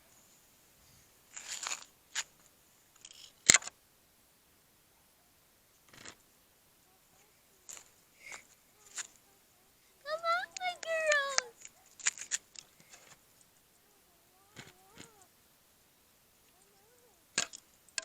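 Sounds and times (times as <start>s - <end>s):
rustles: 0.0s - 18.0s.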